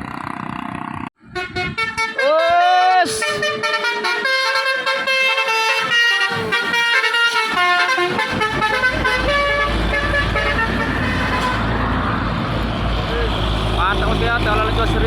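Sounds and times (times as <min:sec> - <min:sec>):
multi-tone truck horn melody: 0:01.2 - 0:12.0
diesel truck engine rumble: 0:03.0 - 0:15.0.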